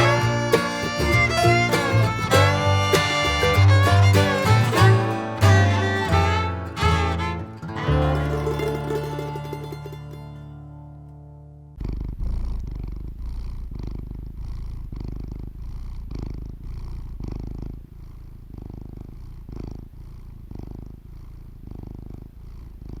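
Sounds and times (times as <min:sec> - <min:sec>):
cat purring: 0:11.8 - 0:23.0.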